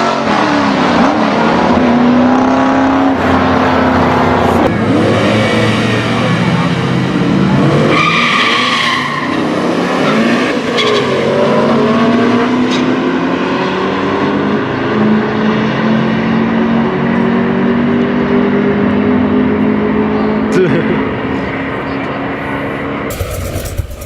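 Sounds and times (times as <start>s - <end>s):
race car engine accelerating: 0.0s - 15.8s, 23.1s - 24.0s
tire squeal: 7.8s - 11.3s, 23.1s - 24.0s.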